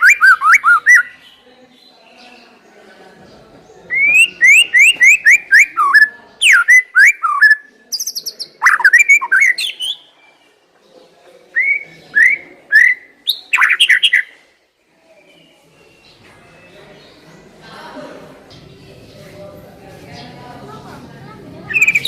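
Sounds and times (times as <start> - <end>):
songbird whistling song: 0.0 - 1.3, 3.9 - 10.1, 11.5 - 14.4, 21.7 - 22.0.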